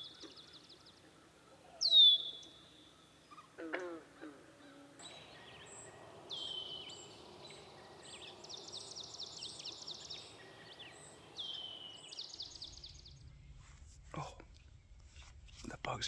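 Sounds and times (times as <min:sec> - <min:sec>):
songbirds whistling: 0:01.8 - 0:03.5, 0:05.0 - 0:13.3.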